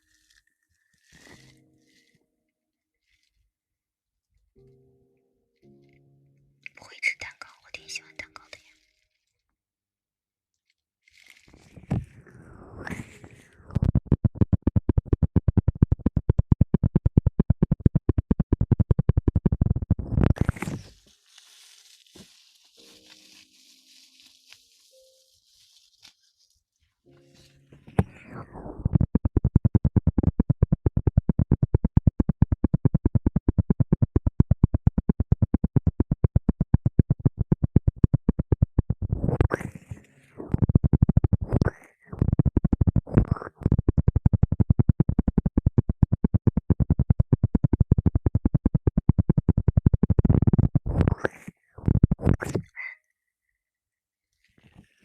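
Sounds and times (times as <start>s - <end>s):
rapid rhythmic scratching: 12.8s - 21.0s, 28.0s - 52.7s.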